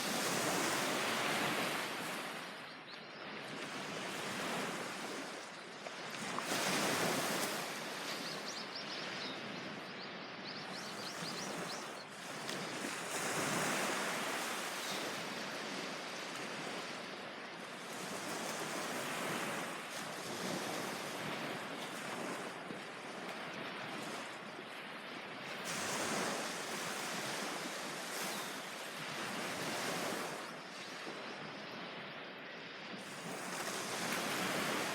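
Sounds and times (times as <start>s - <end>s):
ocean surf washing onto beach: 0.0s - 2.6s.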